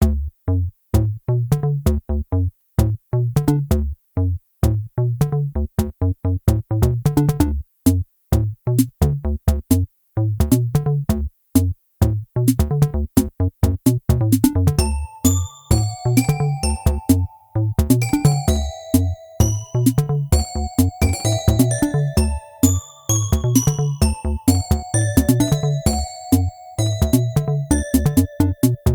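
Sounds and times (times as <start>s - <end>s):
electronic music with drum-machine beat: 6.8s - 8.0s, 12.5s - 28.9s.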